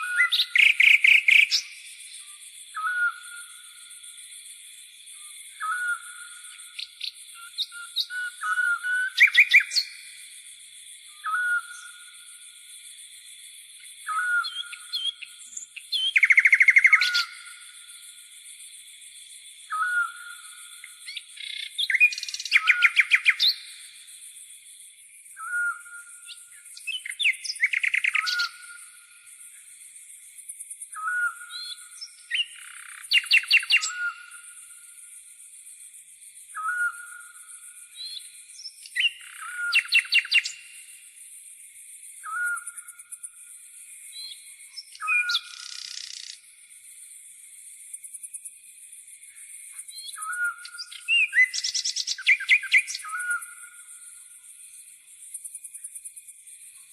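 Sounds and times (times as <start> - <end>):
rapid bird trills: 14.1 - 17.7, 25.4 - 28.9, 31.1 - 34.4
high-pitched insect buzz: 44.8 - 47.2.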